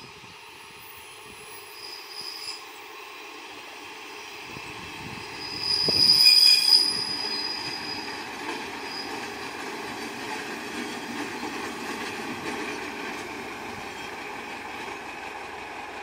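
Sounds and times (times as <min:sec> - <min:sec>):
high steady squeal: 0:00.4 - 0:03.3, 0:04.0 - 0:09.3
diesel train rumble: 0:02.6 - 0:16.0.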